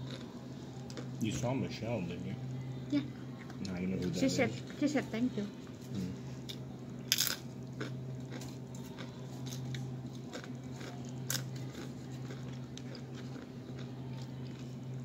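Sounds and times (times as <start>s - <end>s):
chips crunching while chewed: 0.0s - 0.3s, 6.5s - 15.0s
low hum: 0.0s - 15.0s.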